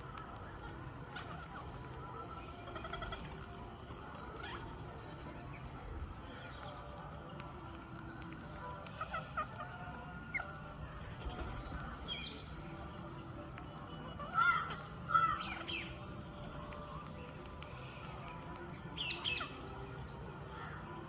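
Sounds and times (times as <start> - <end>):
parakeets chirping and squawking: 0.3 - 5.1.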